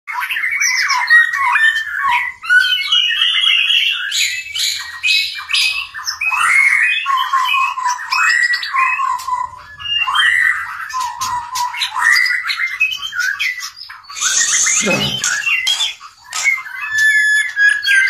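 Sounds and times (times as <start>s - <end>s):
songbird singing: 0.1s - 18.0s
rasping bird notes: 14.1s - 17.8s.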